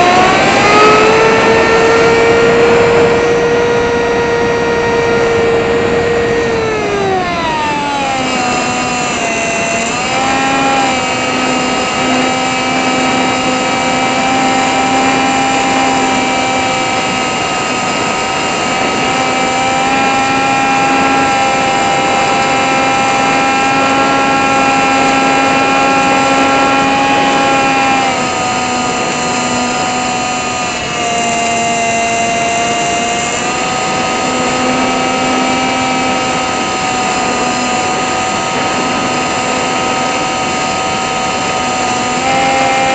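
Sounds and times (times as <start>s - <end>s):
rushing air: 0.0s - 19.0s
small motor propeller whine: 0.0s - 42.9s.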